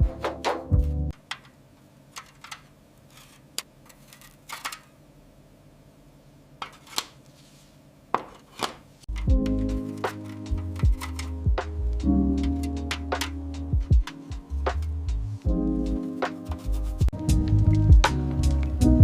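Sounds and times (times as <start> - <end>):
background music: 0.0 - 1.2, 9.1 - 19.0.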